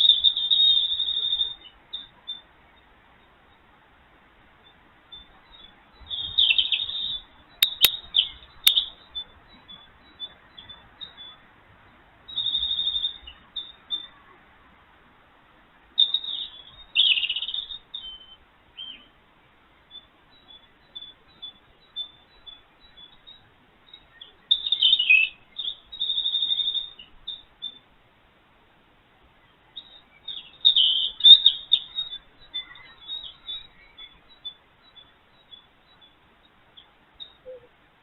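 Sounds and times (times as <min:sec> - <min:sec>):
small birds chirping: 0:00.0 - 0:14.6, 0:15.9 - 0:28.0, 0:29.1 - 0:37.9.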